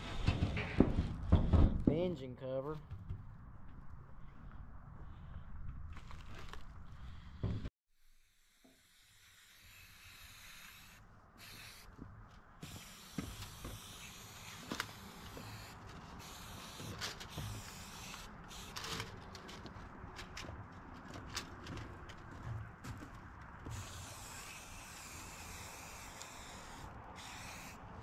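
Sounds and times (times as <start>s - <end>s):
aerosol spray can hissing: 8.3s - 11.9s, 12.6s - 18.8s, 23.7s - 27.8s.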